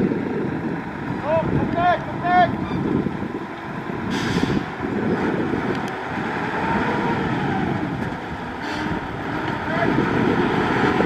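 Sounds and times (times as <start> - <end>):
diesel machinery rumbling: 0.0 - 11.0
short hisses: 4.1 - 4.7.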